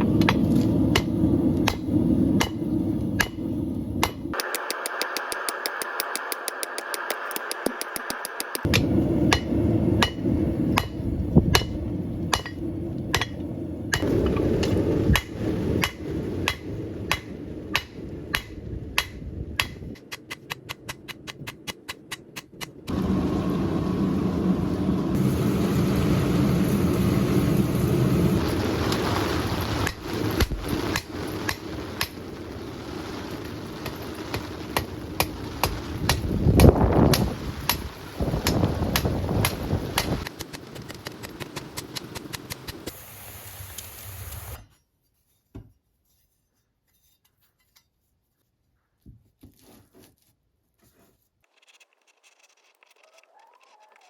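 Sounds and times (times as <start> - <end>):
hammer striking steel on anvil: 2.4 - 22.9
low rumble: 8.7 - 20.0, 22.9 - 40.3.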